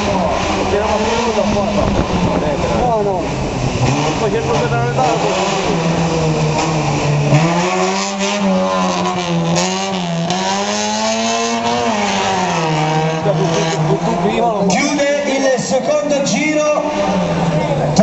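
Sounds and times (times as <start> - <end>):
car engine revving hard: 0.0 - 18.0.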